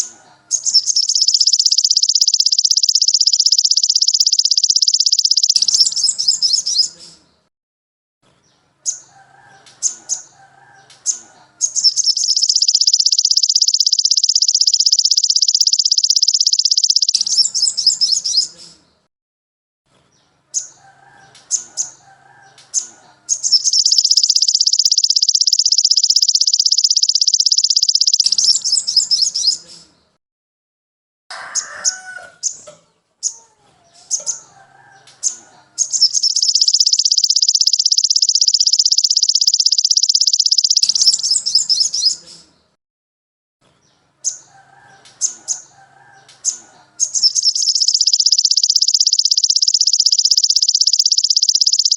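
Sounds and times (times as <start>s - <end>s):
loud rapid high bird trill: 0.0s - 7.0s, 11.6s - 18.5s, 23.3s - 29.6s, 35.2s - 42.2s, 46.4s - 51.9s
short high bird chirps: 0.0s - 7.2s, 11.0s - 18.8s, 22.8s - 29.9s, 35.2s - 42.5s, 46.4s - 51.9s.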